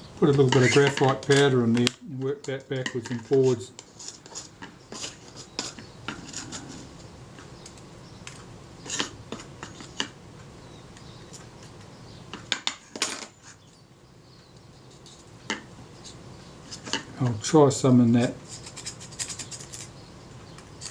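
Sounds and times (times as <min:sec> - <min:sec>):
small metal tools clicking: 0:18.6 - 0:19.9.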